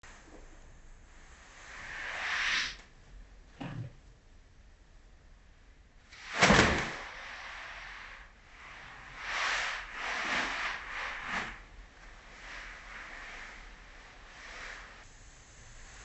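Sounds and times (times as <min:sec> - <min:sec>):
hair rustling swishes: 0:06.2 - 0:16.0
whoosh and thump: 0:06.3 - 0:07.2.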